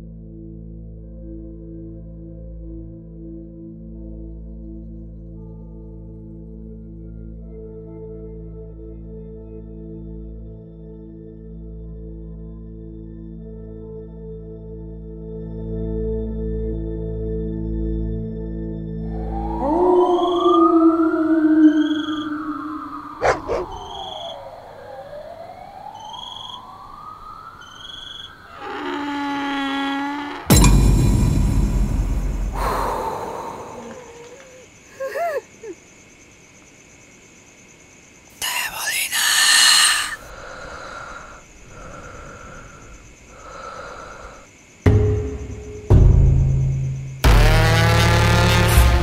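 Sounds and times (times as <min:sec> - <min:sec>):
horror sting with deep drone: 0:30.5 - 0:33.2
breath-like rasps: 0:32.5 - 0:34.6, 0:38.4 - 0:44.5.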